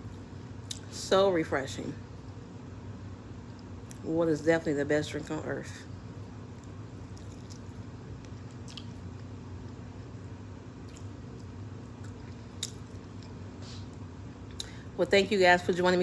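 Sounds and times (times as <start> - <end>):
person chewing food: 6.5 - 9.8, 10.8 - 13.9
soft wet mouth clicks: 6.6 - 9.0, 12.0 - 13.4, 14.5 - 14.8.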